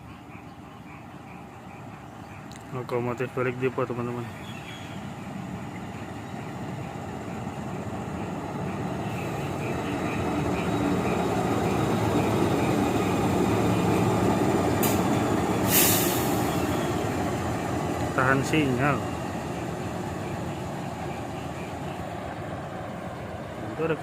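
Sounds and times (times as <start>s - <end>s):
diesel locomotive passing: 0.0s - 24.0s
short hisses: 15.6s - 16.6s.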